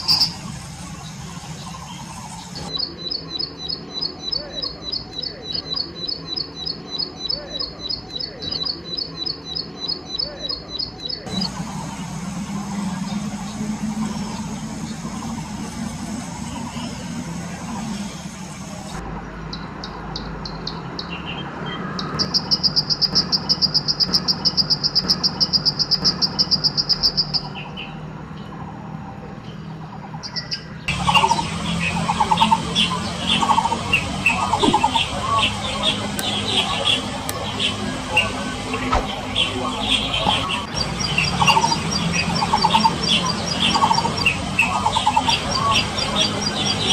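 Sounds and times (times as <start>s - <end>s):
steady low hum: 0.0s - 19.4s, 30.8s - 46.9s
bird singing high trill: 0.0s - 28.5s, 30.2s - 46.9s.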